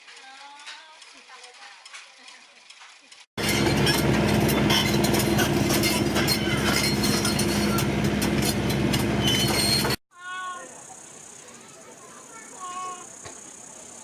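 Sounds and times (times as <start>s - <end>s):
excavator engine running: 3.4s - 10.0s
high-pitched squeaks: 9.1s - 10.0s.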